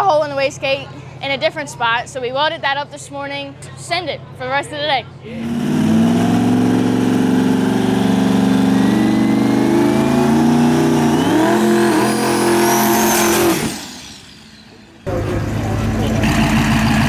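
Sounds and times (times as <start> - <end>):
diesel dragster engine running: 5.2 - 17.0
turbo whistle rising: 8.4 - 14.7.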